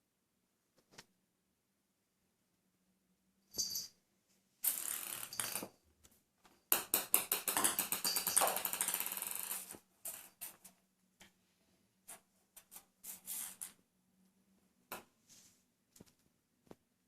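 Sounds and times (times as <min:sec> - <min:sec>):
ping-pong ball clattering: 0:04.7 - 0:05.8, 0:06.7 - 0:09.8.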